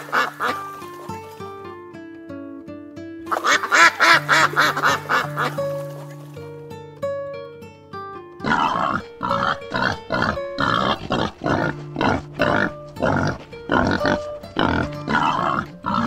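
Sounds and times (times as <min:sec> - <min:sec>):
background music with plucked notes: 0:00.0 - 0:16.0
wild boar grunting: 0:08.4 - 0:16.0.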